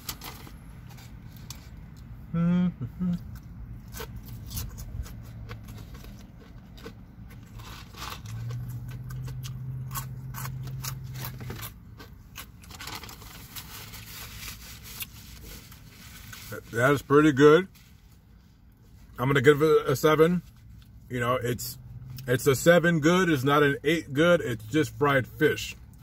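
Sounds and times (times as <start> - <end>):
low steady hum: 0.0 - 26.0
chewing fried fish: 3.0 - 13.3.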